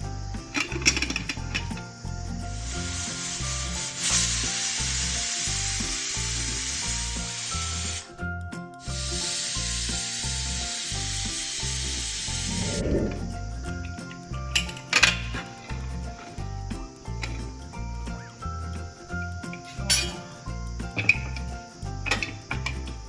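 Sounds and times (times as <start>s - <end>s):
background music with bass line: 0.0s - 4.4s, 11.0s - 23.0s
pressure cooker hissing: 0.0s - 8.2s, 8.8s - 23.0s.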